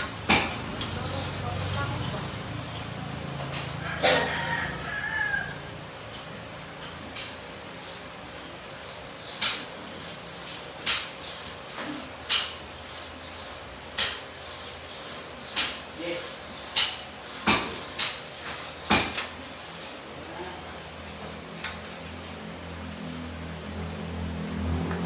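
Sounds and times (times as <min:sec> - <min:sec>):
rooster crowing: 0:03.7 - 0:05.9.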